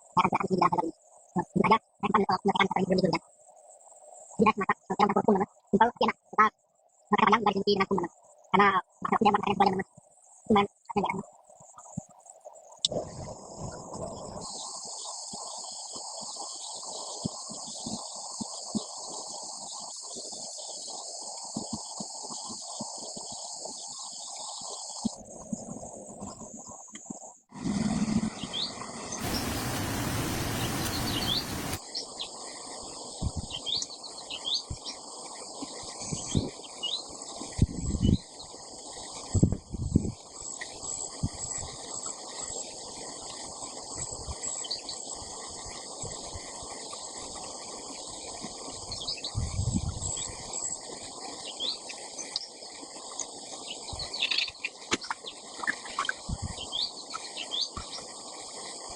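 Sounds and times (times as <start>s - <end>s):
insect drone: 6.5s - 58.9s
birds chirping: 27.6s - 31.8s
loud rushing noise: 27.8s - 31.8s.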